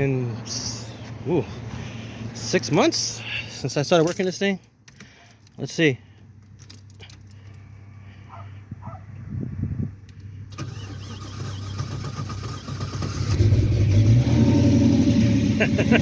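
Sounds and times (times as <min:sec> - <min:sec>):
car engine cranking and starting: 0:10.0 - 0:16.0.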